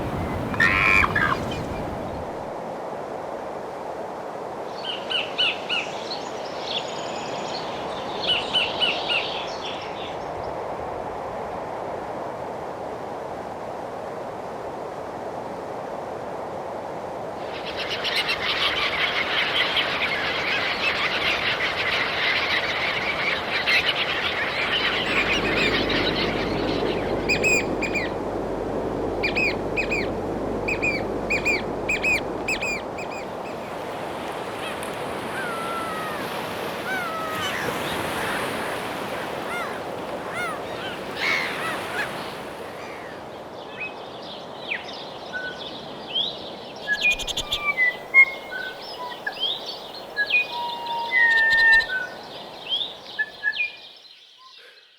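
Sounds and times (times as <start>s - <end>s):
sharp bird calls: 0.0s - 2.3s, 30.7s - 43.2s, 46.8s - 52.2s
birds chattering: 0.0s - 2.4s, 30.7s - 43.2s
gliding whistled bird notes: 18.6s - 28.2s, 29.2s - 33.7s, 34.6s - 38.5s, 44.8s - 53.8s.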